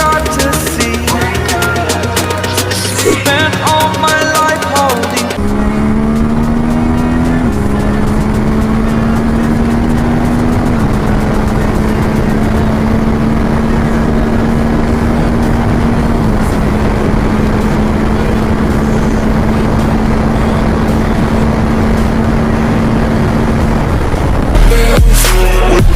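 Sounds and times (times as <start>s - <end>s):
loud rush of noise: 0.0s - 25.9s
motorcycle engine revving: 0.0s - 25.9s.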